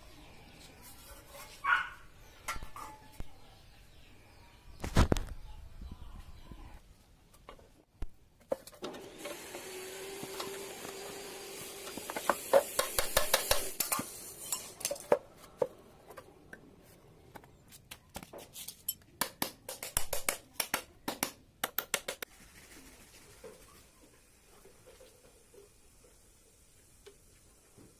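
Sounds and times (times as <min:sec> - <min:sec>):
steady hiss: 0:22.4 - 0:27.9.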